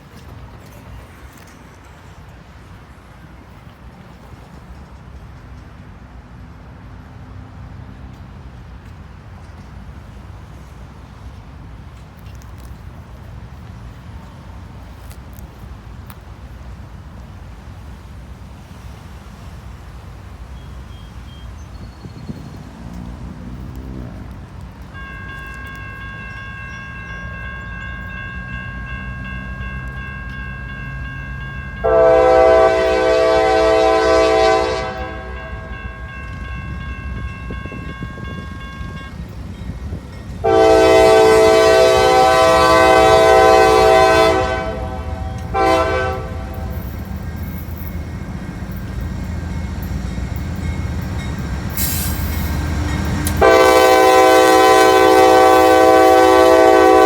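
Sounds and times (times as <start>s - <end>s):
freight train rumbling: 0.0s - 57.0s
locomotive horn blasts: 24.9s - 39.2s, 40.4s - 47.2s, 53.2s - 57.0s.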